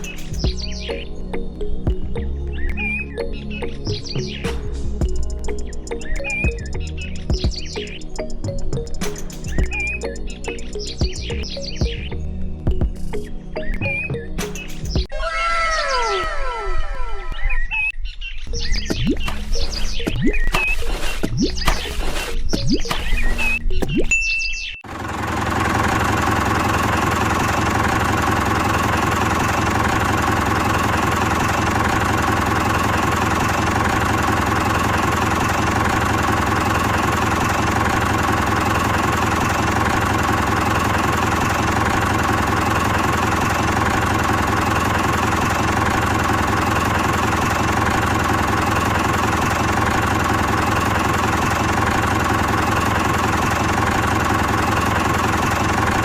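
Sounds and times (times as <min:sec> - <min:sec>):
small diesel engine chugging: 0:09.4 - 0:12.0, 0:24.8 - 0:56.0.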